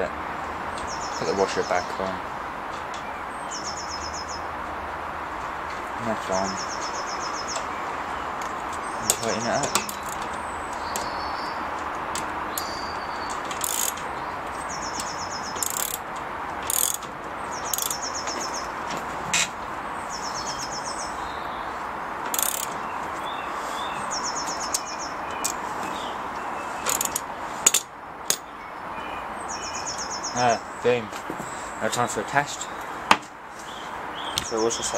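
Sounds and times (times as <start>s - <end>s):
spanner clicking on metal nut: 9.0s - 11.1s, 13.3s - 14.1s, 14.9s - 18.0s, 22.3s - 22.8s, 26.9s - 28.4s
bird trill: 12.5s - 16.0s, 16.7s - 18.8s, 20.1s - 27.2s, 28.4s - 30.9s.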